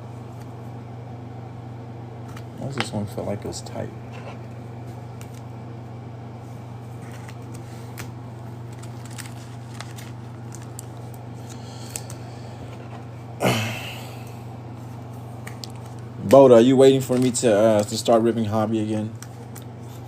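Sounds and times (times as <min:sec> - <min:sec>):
steady low hum: 0:00.0 - 0:20.0
cards and packaging rustling: 0:07.0 - 0:12.2, 0:15.4 - 0:19.5.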